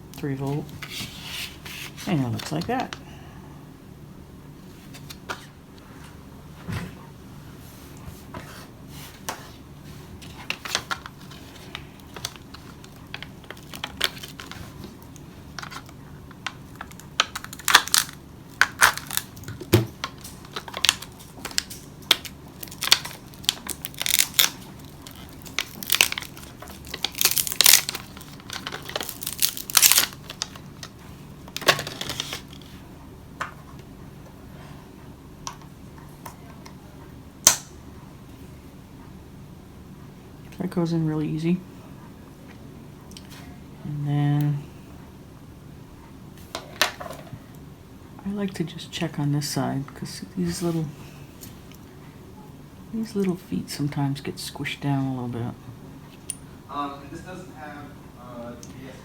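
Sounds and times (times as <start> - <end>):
packaging crinkling and tearing: 10.4 - 30.9, 31.5 - 32.7.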